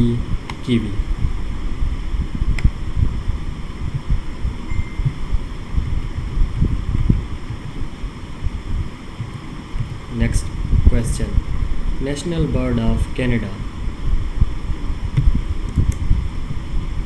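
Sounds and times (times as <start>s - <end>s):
low irregular rumbling: 0.0s - 17.0s.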